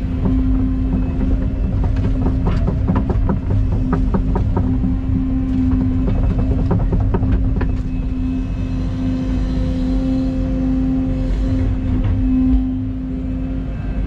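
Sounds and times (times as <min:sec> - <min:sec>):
machine clanks and rattles: 0:00.0 - 0:09.7
excavator engine humming: 0:00.0 - 0:14.0.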